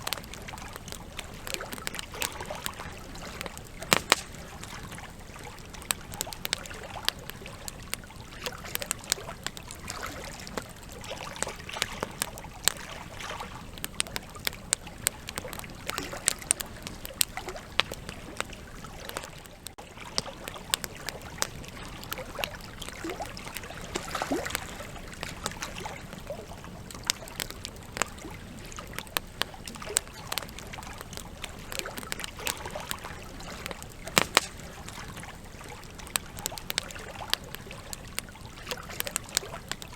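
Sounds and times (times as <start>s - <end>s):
logs crackling and popping: 0.0s - 39.9s
hiss of flame: 3.7s - 4.7s, 32.9s - 35.2s.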